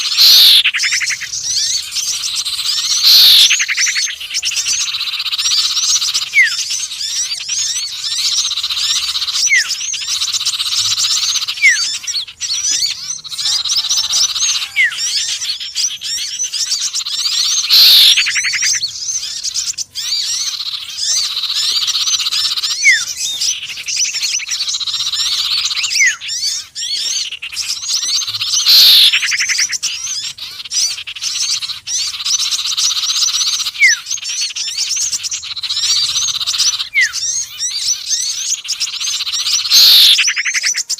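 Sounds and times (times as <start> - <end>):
loud falling bird call: 0.0 - 40.9
songbirds chirping and twittering: 0.0 - 40.9
short rising whistles: 2.9 - 3.6, 17.5 - 18.3, 28.6 - 29.2.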